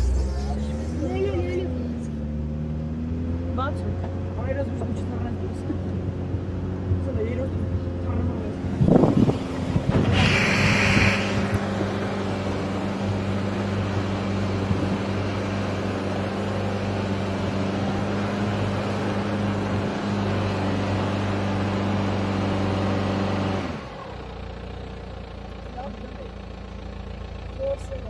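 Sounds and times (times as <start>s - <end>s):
car engine running: 0.0s - 28.0s
brief hiss: 10.0s - 11.7s.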